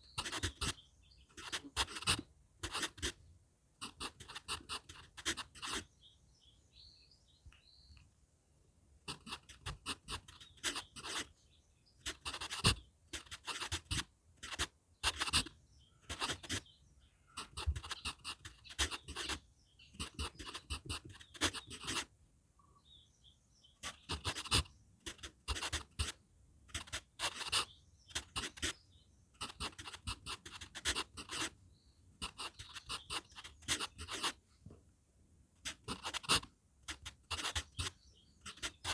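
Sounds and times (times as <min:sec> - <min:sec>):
faint bird chirps: 0:00.0 - 0:03.3, 0:03.9 - 0:08.0, 0:09.1 - 0:34.4, 0:35.7 - 0:38.9
pencil scratching on paper: 0:00.2 - 0:00.8, 0:01.4 - 0:03.2, 0:03.8 - 0:05.9, 0:09.1 - 0:11.3, 0:12.0 - 0:15.5, 0:16.1 - 0:16.7, 0:17.4 - 0:19.4, 0:20.0 - 0:22.1, 0:23.8 - 0:28.8, 0:29.4 - 0:31.5, 0:32.2 - 0:34.4, 0:35.6 - 0:38.9.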